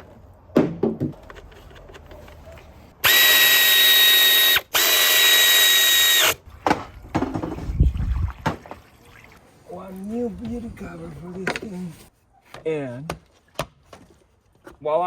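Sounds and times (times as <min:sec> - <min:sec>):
power tool motor running: 0:03.0 - 0:06.4
parts knocking and clattering: 0:06.6 - 0:07.7.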